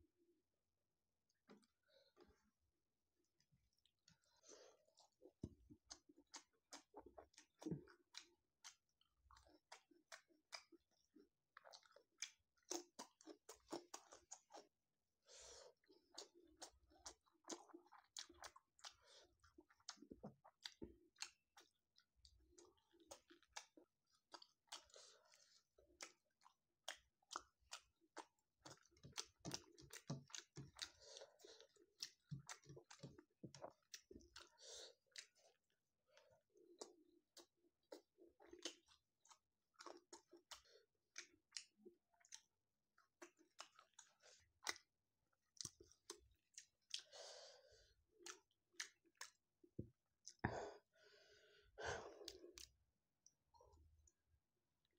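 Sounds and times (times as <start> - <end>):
chewing food mouth clicks: 5.8 - 10.8, 11.6 - 14.7, 16.1 - 21.8, 22.6 - 25.0, 25.9 - 34.5, 36.8 - 47.1, 48.2 - 49.4, 50.2 - 50.4.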